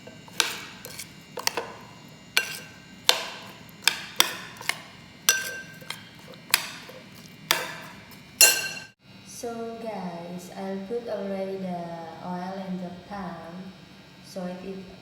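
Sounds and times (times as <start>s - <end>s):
utensil tapping mixing bowl: 0.0s - 8.9s.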